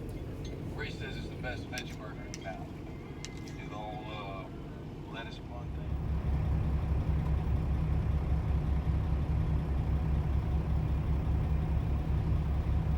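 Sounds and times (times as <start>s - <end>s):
diesel truck engine idling: 4.4s - 12.9s.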